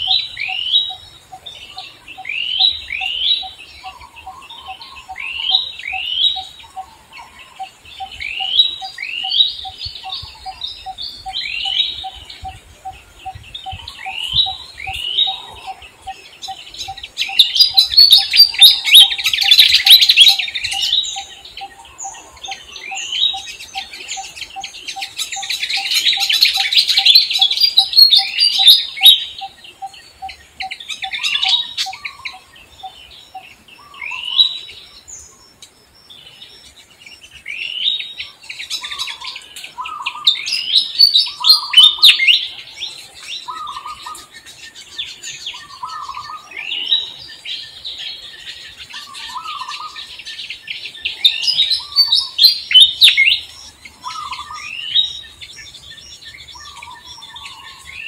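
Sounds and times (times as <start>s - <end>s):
birds chirping and twittering: 0.0s - 58.0s.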